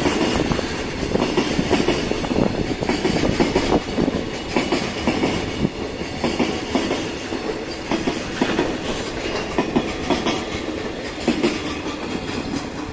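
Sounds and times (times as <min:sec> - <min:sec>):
train rolling rumble: 0:00.0 - 0:12.9
train wheels clacking over rail joints: 0:00.0 - 0:12.9.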